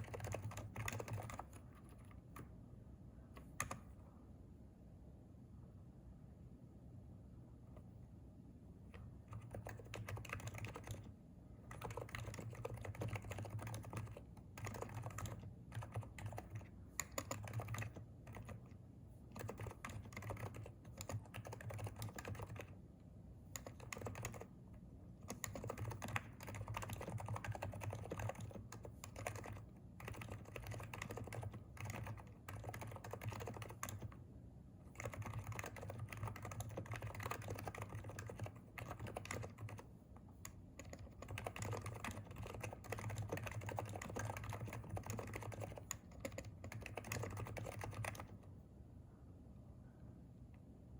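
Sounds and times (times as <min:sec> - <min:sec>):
keyboard typing: 0:00.0 - 0:02.5, 0:03.3 - 0:03.9, 0:08.9 - 0:22.8, 0:23.5 - 0:24.6, 0:25.2 - 0:34.2, 0:34.9 - 0:48.5.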